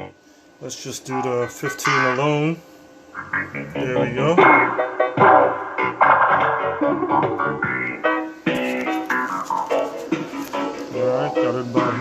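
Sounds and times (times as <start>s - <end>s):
music through a loudspeaker: 3.2s - 12.0s.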